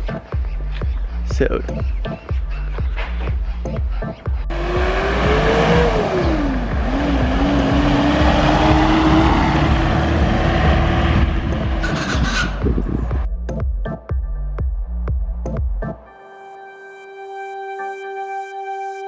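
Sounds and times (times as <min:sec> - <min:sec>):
car engine: 0:04.5 - 0:13.3
road and wind noise: 0:04.5 - 0:13.3.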